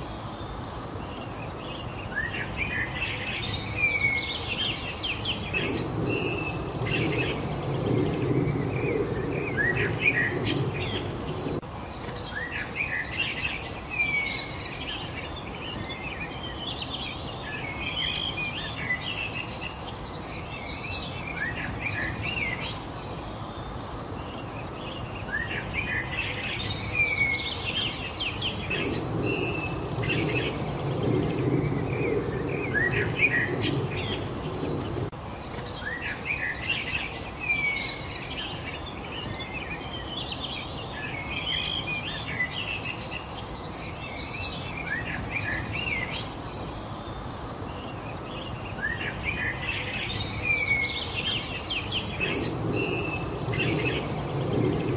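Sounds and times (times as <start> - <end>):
songbirds chirping and singing: 0.0 - 54.9
low background rumble: 3.2 - 11.6, 21.6 - 35.2.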